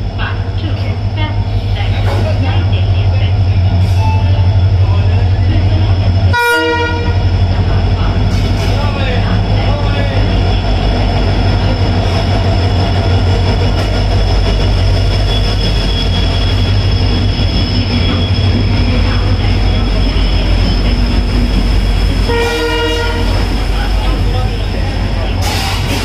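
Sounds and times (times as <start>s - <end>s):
train wheels rumbling on rail: 0.0s - 26.0s
train horn: 6.3s - 7.2s, 22.3s - 23.5s.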